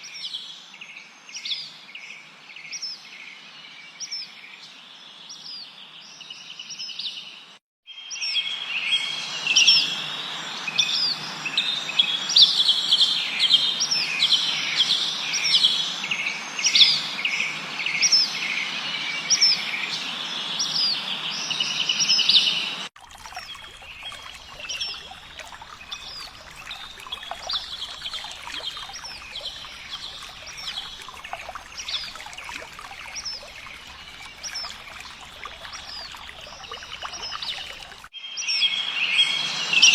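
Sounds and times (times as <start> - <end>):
small birds chirping: 20.0 - 38.1.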